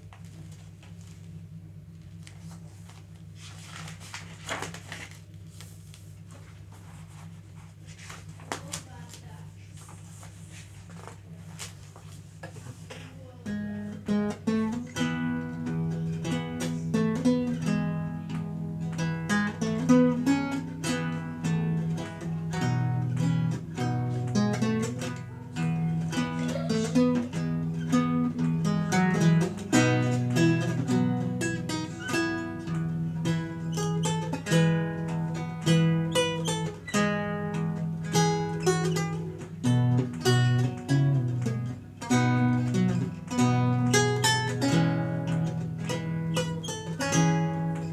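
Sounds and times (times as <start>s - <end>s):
solo lute playing: 13.5s - 47.9s.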